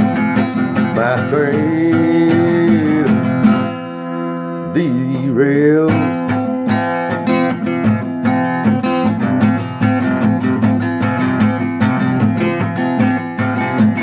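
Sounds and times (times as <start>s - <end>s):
person singing country song: 0.0s - 7.1s
guitar strumming: 0.0s - 14.0s.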